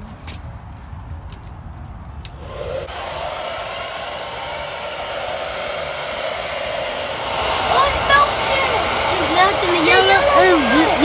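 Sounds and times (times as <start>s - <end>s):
hair dryer blowing: 2.3s - 11.0s.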